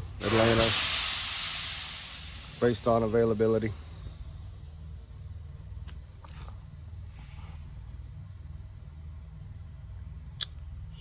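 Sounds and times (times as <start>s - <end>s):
diesel engine idling: 0.0s - 4.0s
brief hiss: 0.0s - 4.2s, 7.1s - 7.7s.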